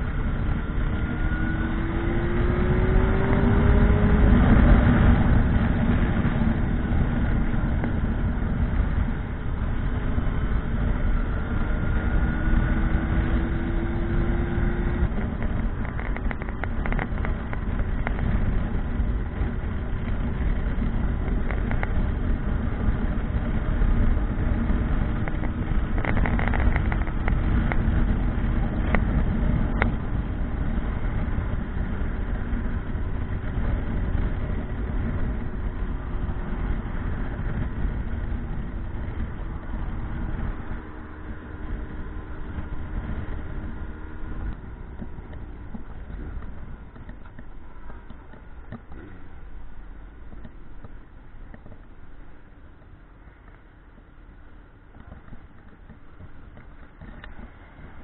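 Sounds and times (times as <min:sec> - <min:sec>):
motorcycle engine rumble: 0:00.0 - 0:58.0.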